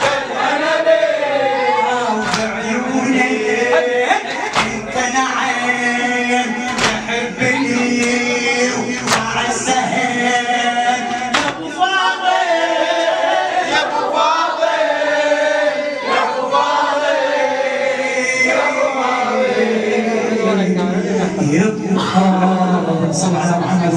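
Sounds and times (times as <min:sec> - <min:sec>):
men singing together unaccompanied: 0:00.0 - 0:23.9
sharp slaps: 0:02.2 - 0:02.6, 0:04.4 - 0:05.0, 0:06.7 - 0:07.2, 0:09.0 - 0:09.5, 0:11.3 - 0:11.7.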